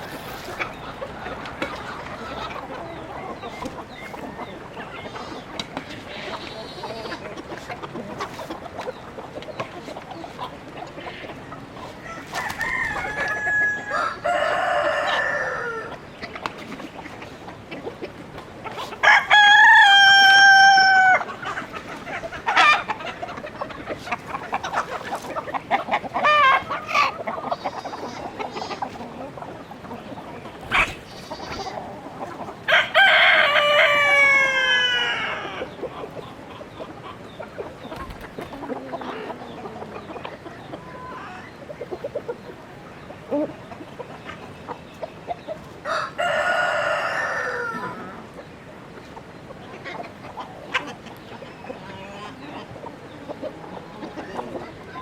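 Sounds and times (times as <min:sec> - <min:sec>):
hens clucking: 0:00.0 - 0:55.0
roosters crowing: 0:11.8 - 0:16.1, 0:18.7 - 0:25.2, 0:30.4 - 0:35.9, 0:45.8 - 0:48.4.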